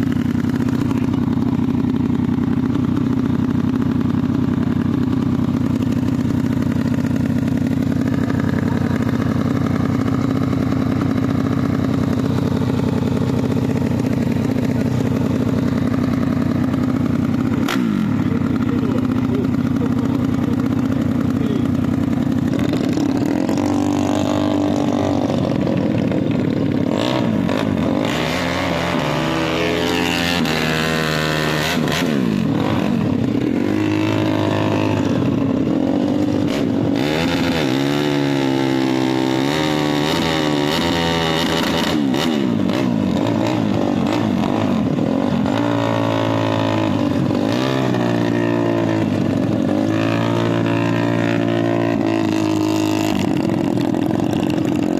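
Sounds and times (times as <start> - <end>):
motorcycle engines revving: 0.0 - 54.9.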